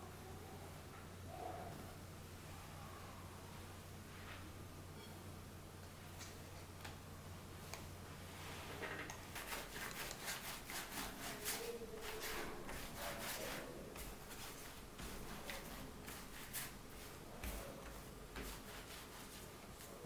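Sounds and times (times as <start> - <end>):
rubbing and scraping strokes: 9.3 - 19.9.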